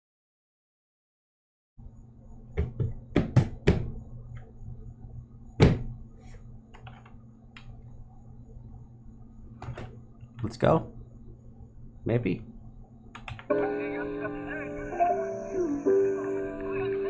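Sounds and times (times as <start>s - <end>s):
sharp knocks and thumps: 2.6s - 3.9s.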